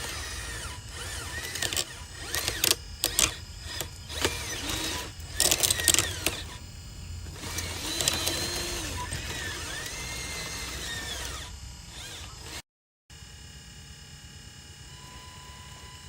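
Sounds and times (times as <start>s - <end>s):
small electric motors whining: 0.0s - 12.6s, 14.8s - 16.0s
sharp clicks and clattering: 1.3s - 6.6s, 7.2s - 10.4s.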